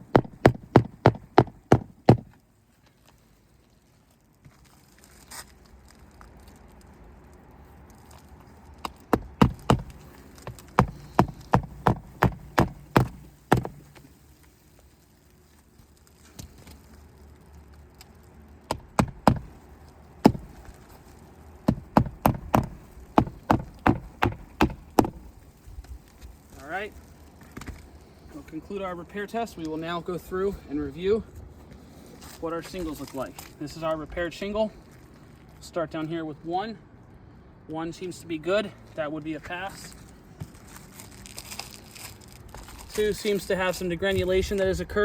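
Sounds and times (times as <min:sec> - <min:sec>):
hammer pounding a shingle roof: 0:00.0 - 0:02.3, 0:08.8 - 0:14.1, 0:18.7 - 0:19.6, 0:20.2 - 0:20.6, 0:21.6 - 0:25.3.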